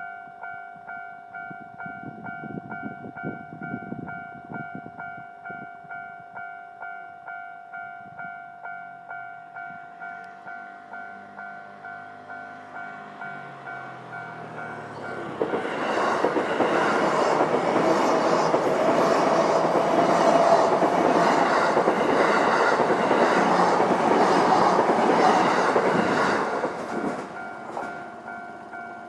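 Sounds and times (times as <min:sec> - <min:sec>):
crossing warning bell ringing: 0:00.0 - 0:29.0
train passing: 0:09.1 - 0:29.0
wheels clattering over rail joints: 0:13.2 - 0:29.0.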